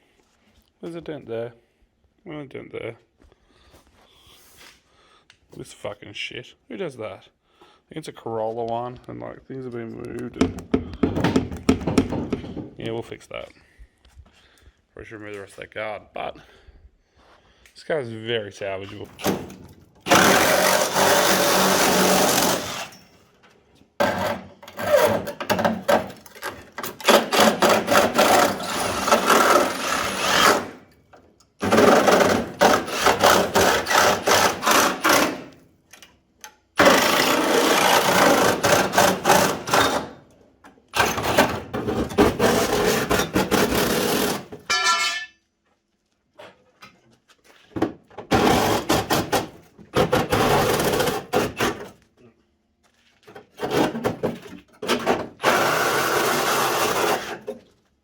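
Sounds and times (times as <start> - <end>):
power tool on car body: 20.1 - 23.1, 26.9 - 30.8, 31.6 - 35.6, 36.8 - 40.2, 55.4 - 57.5.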